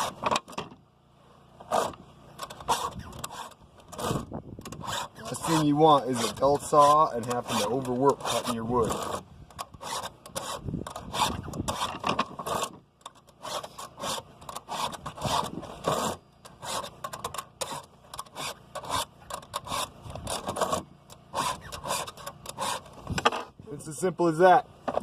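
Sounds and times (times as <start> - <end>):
file rasping on chainsaw chain: 1.6 - 23.0.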